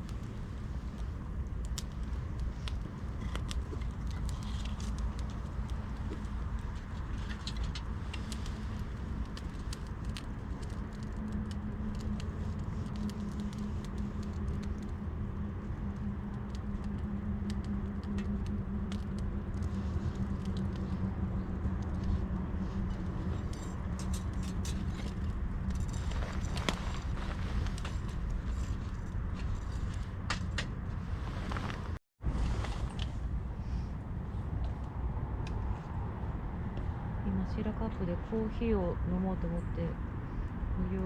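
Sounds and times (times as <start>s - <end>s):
campfire crackling and popping: 0.0s - 32.0s
low rumble and hum: 0.0s - 41.0s.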